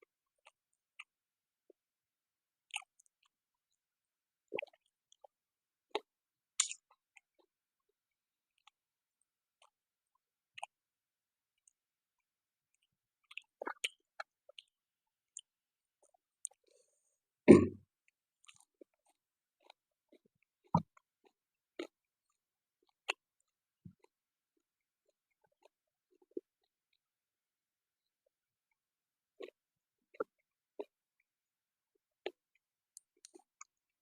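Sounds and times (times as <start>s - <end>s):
person chewing: 5.9s - 7.2s.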